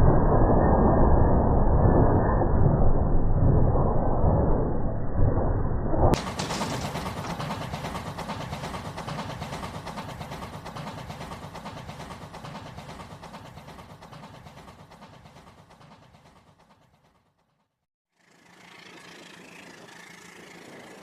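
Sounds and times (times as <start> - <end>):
toy train clattering on track: 6.2 - 17.2.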